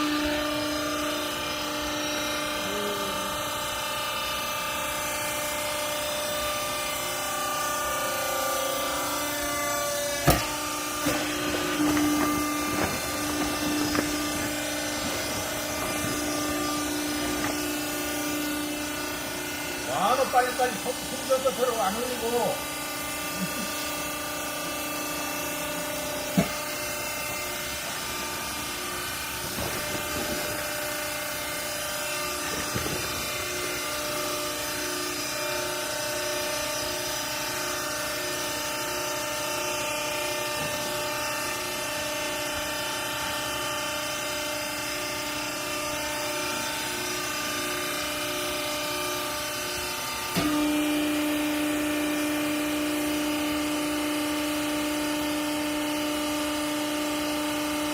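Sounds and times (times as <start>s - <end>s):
hydraulic motor and pump humming: 0.0s - 57.9s.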